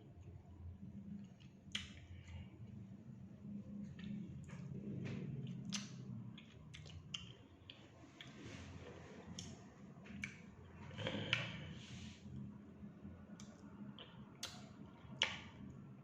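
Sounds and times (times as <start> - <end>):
steady low hum: 0.0 - 16.0
mouth clicks and smacks: 1.2 - 2.4, 5.0 - 8.4, 9.3 - 11.6, 13.3 - 15.7
chewing: 5.1 - 8.4.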